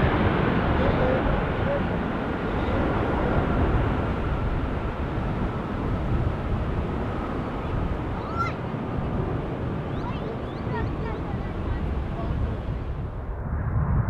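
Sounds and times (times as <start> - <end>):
faint engine whine: 0.0 - 13.4
jet engine rumble: 0.0 - 14.0
bird chirp: 9.9 - 11.9.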